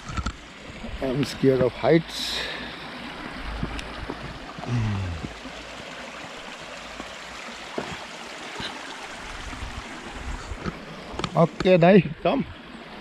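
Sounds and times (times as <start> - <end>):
stream water flowing: 0.0 - 13.0
low falling vocal sound: 4.6 - 5.4.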